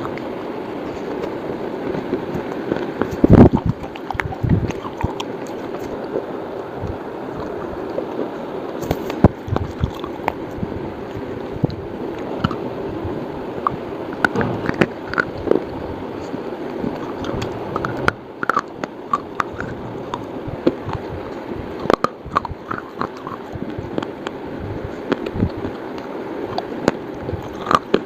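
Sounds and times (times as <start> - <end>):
steady background noise: 0.0 - 28.0
slate pencils snapping and crunching: 8.1 - 10.4, 13.6 - 21.1, 21.8 - 24.4.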